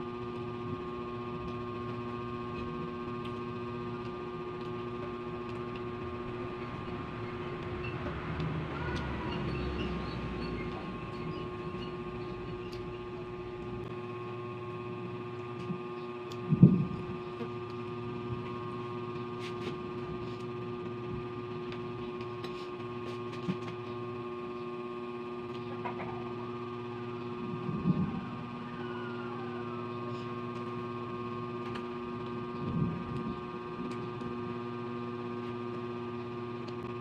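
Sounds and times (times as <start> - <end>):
steady electrical hum: 0.0 - 37.0.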